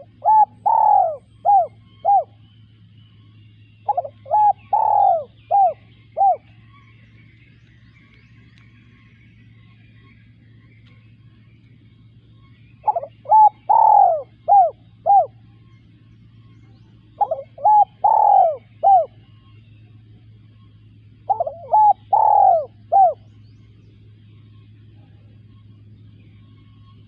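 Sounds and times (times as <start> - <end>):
dove cooing: 0.0 - 2.4, 3.8 - 6.8, 12.8 - 15.5, 17.0 - 19.5, 21.1 - 23.4
faint low hum: 0.0 - 27.0.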